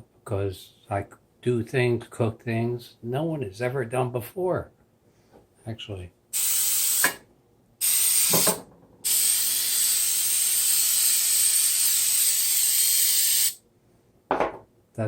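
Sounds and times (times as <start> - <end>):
aerosol spray hissing: 6.4 - 7.2, 7.8 - 13.6.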